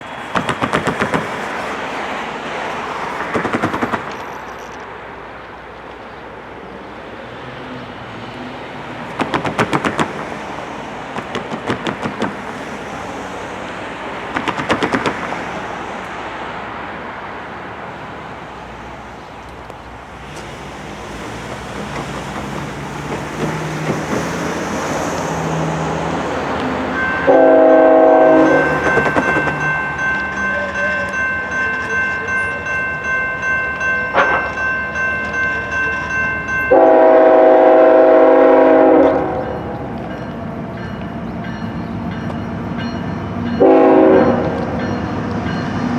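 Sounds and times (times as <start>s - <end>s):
rail clicking: 0.0s - 6.0s, 7.6s - 16.9s, 19.3s - 36.7s
diesel train rumbling: 0.0s - 45.9s
train air horn: 27.2s - 29.0s, 36.7s - 39.5s, 43.6s - 44.6s.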